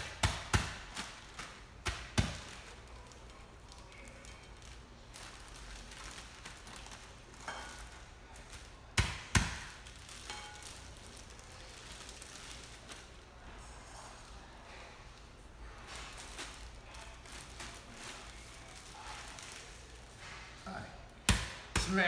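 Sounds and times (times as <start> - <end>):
pretzels smashed in a bag: 0.0 - 13.3.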